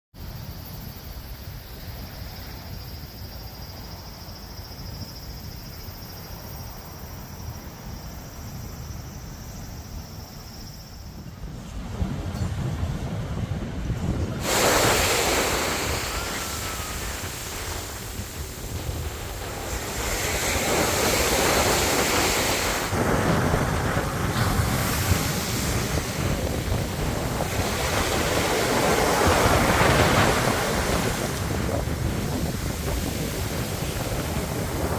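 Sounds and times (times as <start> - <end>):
low rumble of surf: 0.2 - 34.9
wind rumble on microphone: 0.2 - 34.9
wave breaking with hissing wash: 14.1 - 34.9.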